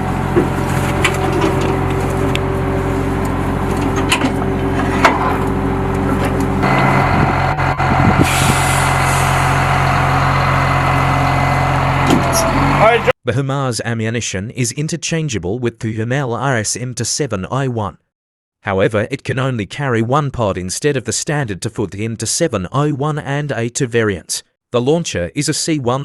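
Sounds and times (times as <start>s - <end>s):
diesel engine running: 0.0s - 13.1s
air hissing: 8.1s - 9.6s.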